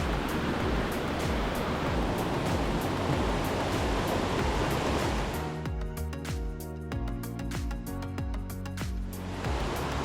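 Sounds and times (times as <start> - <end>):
fast-flowing water rushing: 0.0 - 5.8, 9.2 - 10.0
soft regular beat: 0.0 - 9.8
background music: 0.0 - 10.0.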